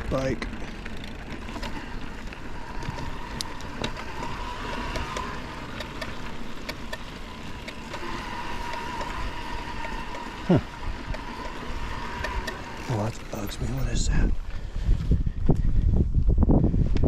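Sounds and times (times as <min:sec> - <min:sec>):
drivetrain whine and clicks: 0:00.0 - 0:16.3
bike riding over dirt trail: 0:00.0 - 0:17.0
wind on microphone: 0:13.5 - 0:17.0.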